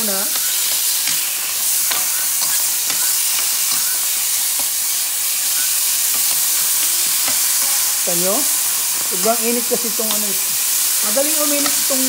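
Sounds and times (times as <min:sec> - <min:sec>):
onion and tomato sizzling in a pan: 0:00.0 - 0:12.0
metal spoon scraping a pan: 0:00.3 - 0:04.8.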